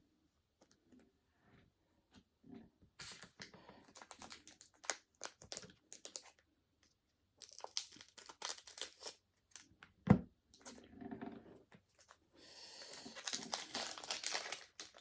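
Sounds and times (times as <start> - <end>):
foil wrapper crinkling: 3.0 - 6.4, 7.4 - 9.7, 12.8 - 15.0.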